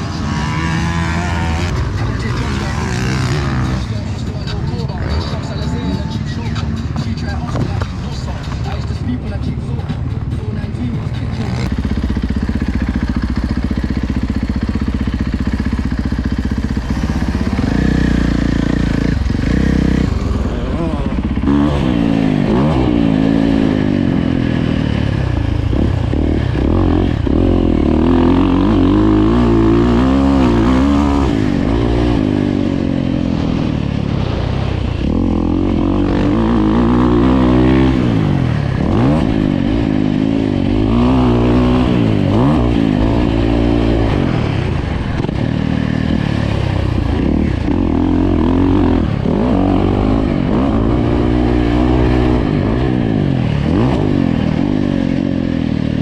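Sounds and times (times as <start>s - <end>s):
dirt bike engine revving: 0.0s - 56.0s
steady low drone: 0.0s - 56.0s.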